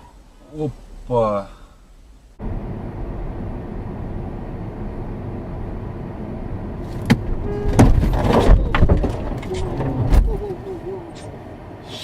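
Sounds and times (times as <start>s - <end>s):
car driving rumble: 0.0s - 12.0s
vehicle collision crashing impacts: 7.0s - 10.5s.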